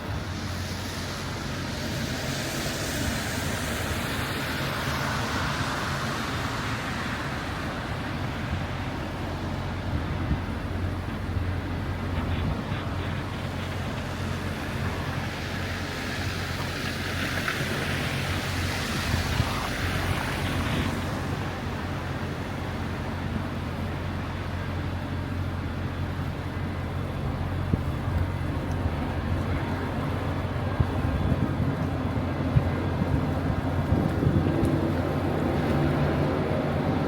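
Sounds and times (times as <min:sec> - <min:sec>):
low traffic rumble: 0:00.0 - 0:37.0
hiss: 0:00.1 - 0:07.8.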